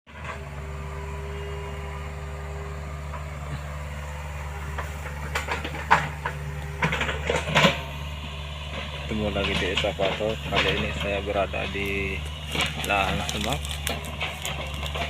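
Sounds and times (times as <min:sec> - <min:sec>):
diesel engine running: 0:00.1 - 0:15.0
sharp knocks and clatters: 0:04.8 - 0:07.9.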